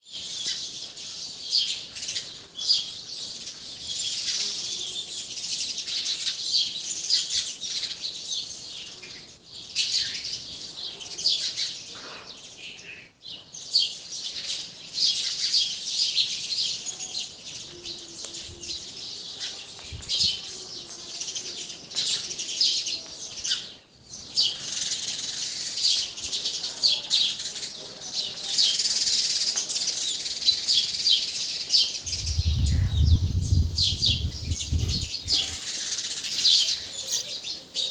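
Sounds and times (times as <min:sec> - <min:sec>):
flock of sparrows chirping: 0:00.1 - 0:37.9.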